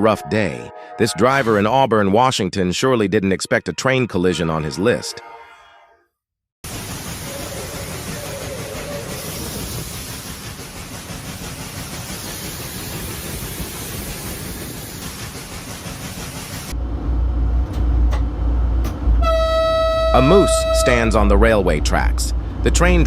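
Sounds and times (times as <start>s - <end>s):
train rumbling: 6.7s - 23.0s.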